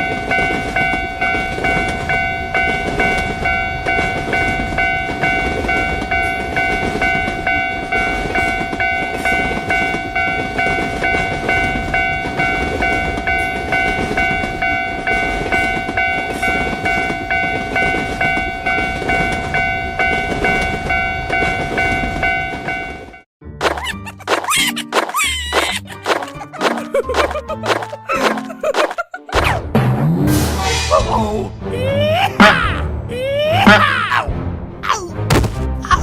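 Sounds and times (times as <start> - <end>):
level crossing bell clanging: 0.0 - 23.3
passing train rumbling: 0.0 - 23.3.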